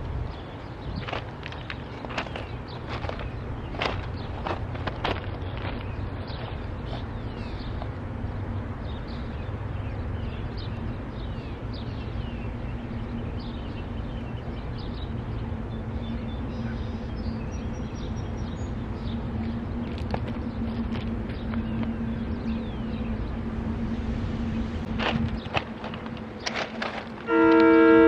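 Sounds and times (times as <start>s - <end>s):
steady hum: 0.0s - 28.0s
small birds chirping: 0.3s - 23.9s
low rumble: 12.5s - 27.3s.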